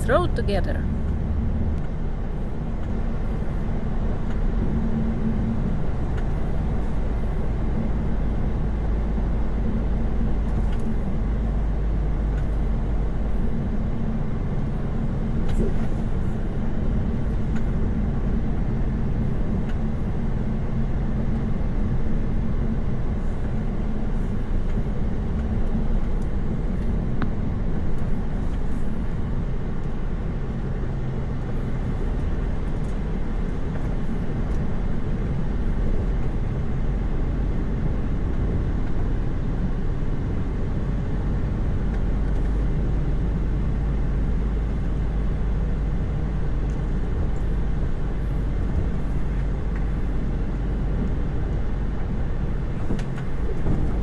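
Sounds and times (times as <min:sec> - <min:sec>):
truck diesel engine cruising: 0:00.0 - 0:01.8.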